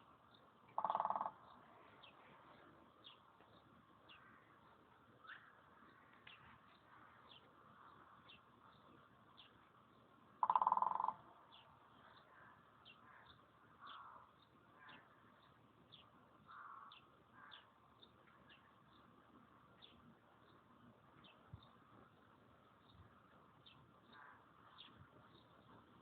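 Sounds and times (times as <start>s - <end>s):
small birds chirping: 0.0s - 26.0s
woodpecker drumming on plastic: 0.8s - 1.4s, 10.4s - 11.2s.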